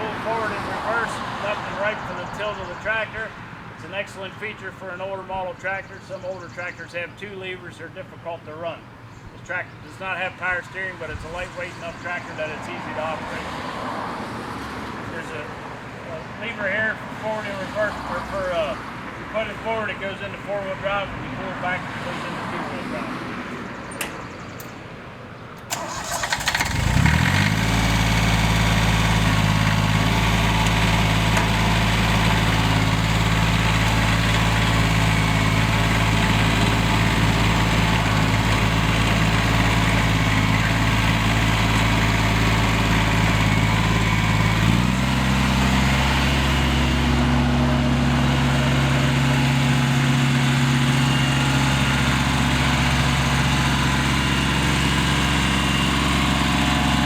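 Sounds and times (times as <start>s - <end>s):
diesel tractor engine starting: 25.6s - 57.0s.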